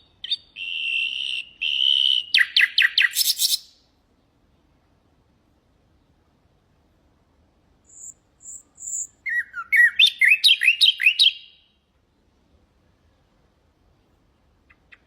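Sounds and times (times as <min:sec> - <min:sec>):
nightingale singing: 0:00.0 - 0:03.9, 0:07.8 - 0:11.8, 0:14.6 - 0:15.0.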